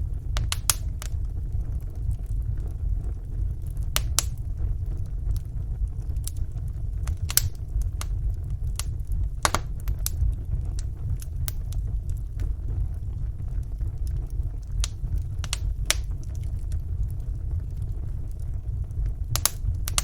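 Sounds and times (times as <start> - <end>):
fire crackles and pops: 0.0 - 20.0
wood fire burning: 0.0 - 20.0.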